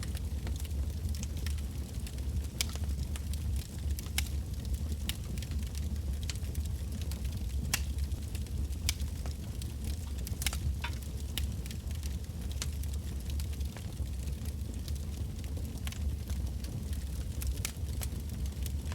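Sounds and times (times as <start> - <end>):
campfire rumbling: 0.0 - 18.9
fire crackling and popping: 0.0 - 18.9.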